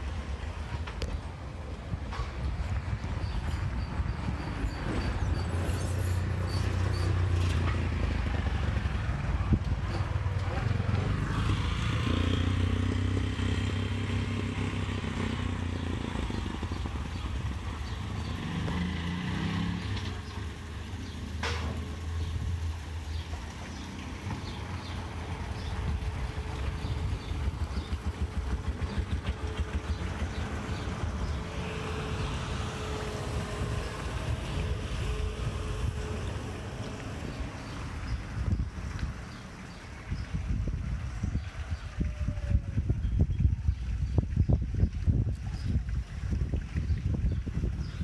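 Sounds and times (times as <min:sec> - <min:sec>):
wind rumbling on microphone: 0:00.0 - 0:20.5, 0:24.2 - 0:48.0
street sounds: 0:00.0 - 0:48.0
vehicle engine running: 0:08.0 - 0:21.2, 0:22.3 - 0:35.2.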